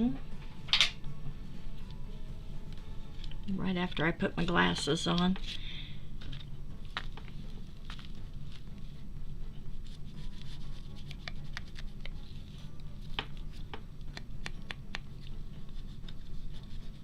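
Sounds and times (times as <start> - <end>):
low steady hum: 0.0 - 17.0
hands handling paper: 6.2 - 8.9.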